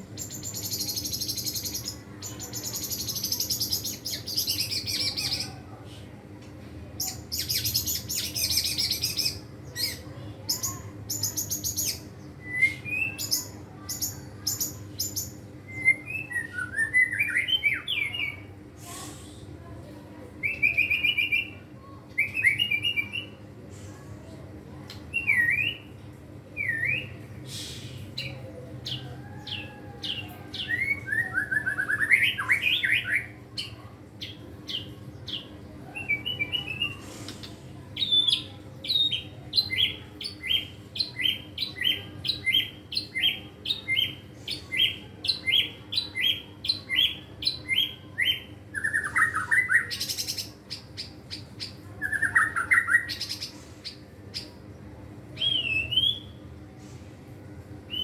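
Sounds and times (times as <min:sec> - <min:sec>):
bird singing whistles and trills: 0:07.3 - 0:18.4, 0:26.6 - 0:28.3, 0:28.9 - 0:33.3, 0:44.8 - 0:50.4, 0:55.4 - 0:56.4.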